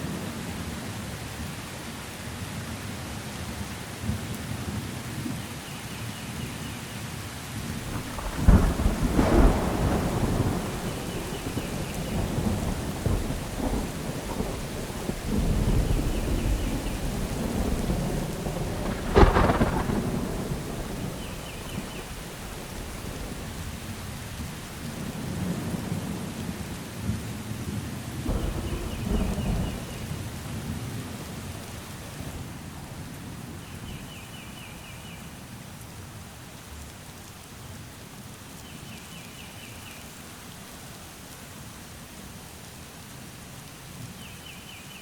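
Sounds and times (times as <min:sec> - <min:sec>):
steady rain: 0:00.0 - 0:45.0
rolling thunder: 0:07.6 - 0:27.3, 0:28.2 - 0:31.4
sharp loud thunderclap: 0:07.8 - 0:23.8, 0:28.3 - 0:30.1.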